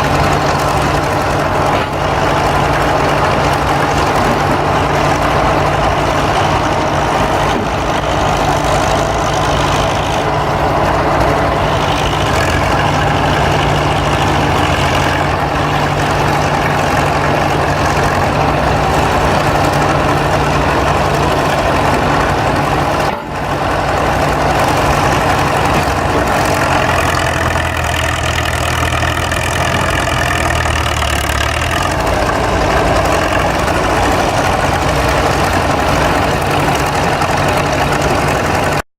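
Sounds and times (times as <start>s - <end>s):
heavy engine idling: 0.0s - 38.8s.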